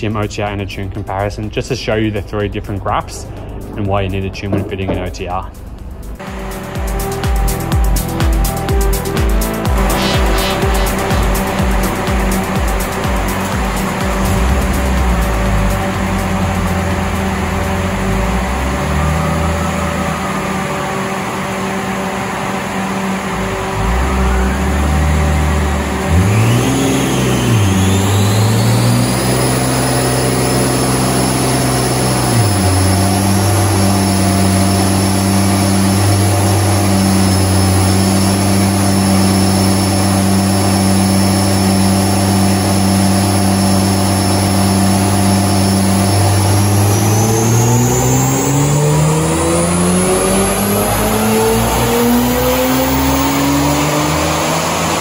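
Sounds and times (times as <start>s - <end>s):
car engine revving: 0.0s - 55.0s
high whine from rollers and tyres: 0.0s - 55.0s.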